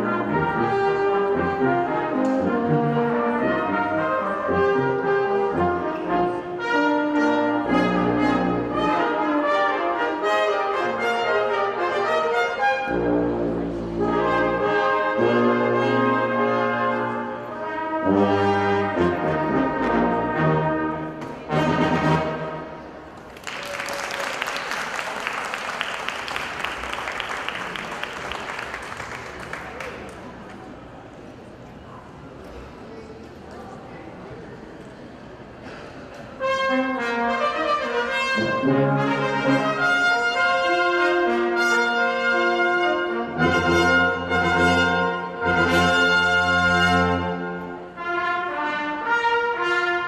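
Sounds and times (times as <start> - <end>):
brass ensemble playing: 0.0 - 23.0, 36.4 - 50.0
audience applause: 23.2 - 30.7.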